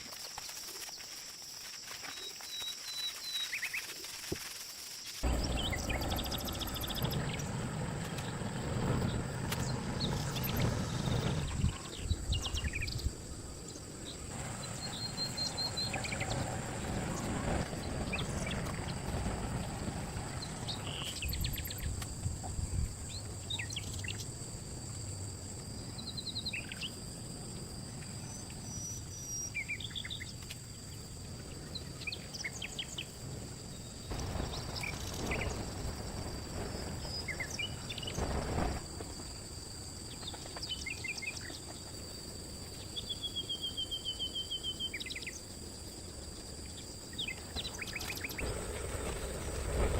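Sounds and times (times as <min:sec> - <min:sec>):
high insect drone: 0:00.0 - 0:49.9
birds chirping: 0:05.2 - 0:21.9
low rumbling background noise: 0:05.2 - 0:41.3.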